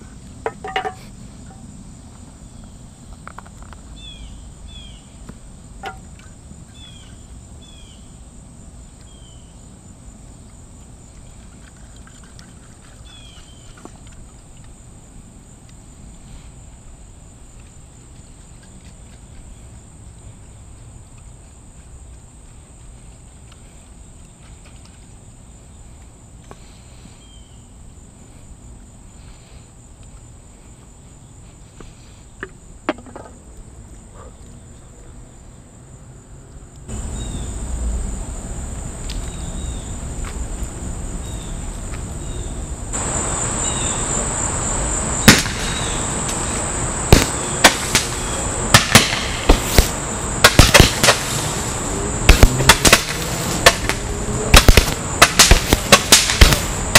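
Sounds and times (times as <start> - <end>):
insect chirring: 0.0 - 21.6, 36.8 - 56.9
fireworks popping: 45.1 - 56.9.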